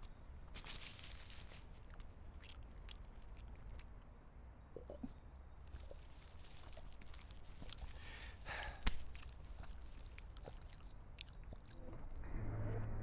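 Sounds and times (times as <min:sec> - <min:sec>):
man chewing a sandwich: 0:01.6 - 0:12.2
breath out: 0:07.8 - 0:09.0.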